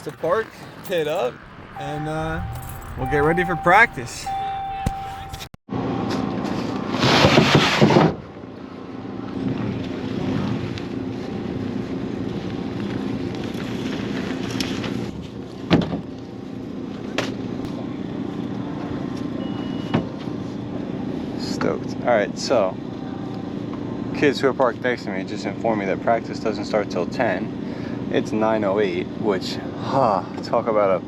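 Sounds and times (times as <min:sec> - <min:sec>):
vehicle engine running: 0:00.0 - 0:05.5.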